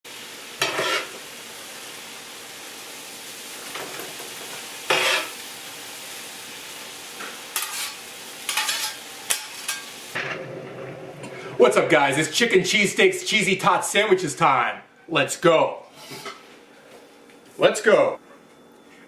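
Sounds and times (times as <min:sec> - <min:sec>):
food sizzling in a hot pan: 0:00.1 - 0:12.2
spatula scraping a pan: 0:00.6 - 0:01.2, 0:04.9 - 0:05.4, 0:07.6 - 0:09.9, 0:15.9 - 0:16.5.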